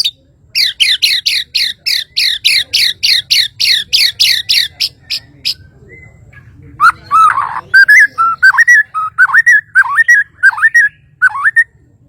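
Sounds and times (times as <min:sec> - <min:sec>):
bird singing whistled notes: 0:06.8 - 0:11.8.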